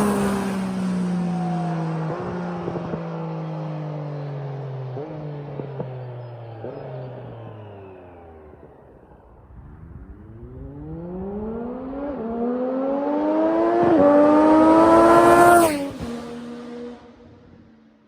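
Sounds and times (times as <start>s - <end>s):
motorcycle engine accelerating hard: 0.0s - 17.8s.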